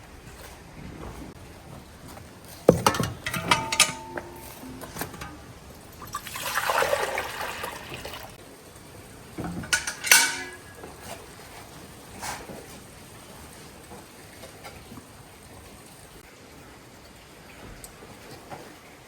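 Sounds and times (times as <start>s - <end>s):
sharp clinks and clatter: 2.7s - 6.1s, 9.6s - 10.8s
water rushing: 4.5s - 8.4s.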